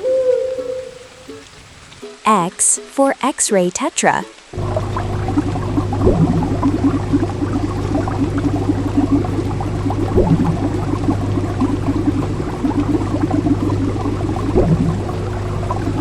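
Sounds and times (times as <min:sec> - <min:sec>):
water bubbling: 0:00.0 - 0:02.0, 0:04.5 - 0:16.0
water gurgle: 0:00.0 - 0:16.0
constant low hum: 0:04.6 - 0:16.0.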